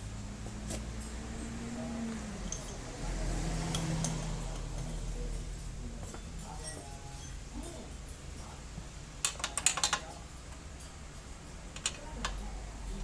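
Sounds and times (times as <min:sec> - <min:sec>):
metal tools clinking: 0:02.4 - 0:03.0, 0:03.6 - 0:08.2.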